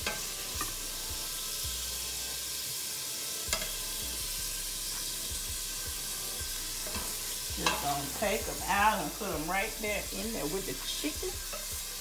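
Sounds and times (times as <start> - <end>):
shrimp sizzling in a frying pan: 0.0 - 12.0
utensil knocking on pan: 6.8 - 8.1.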